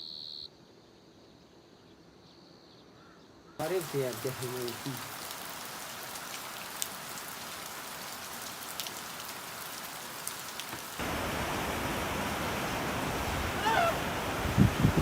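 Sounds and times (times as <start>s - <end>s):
rain falling steadily: 3.6s - 15.0s.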